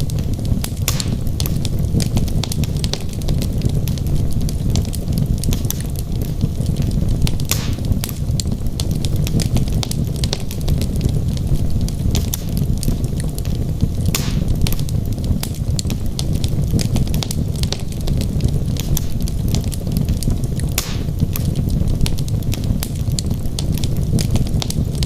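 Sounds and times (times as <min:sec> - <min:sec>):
fire crackling and popping: 0:00.0 - 0:25.0
low rumble of flame: 0:00.0 - 0:25.0
logs snapping: 0:14.0 - 0:14.8, 0:20.6 - 0:22.2.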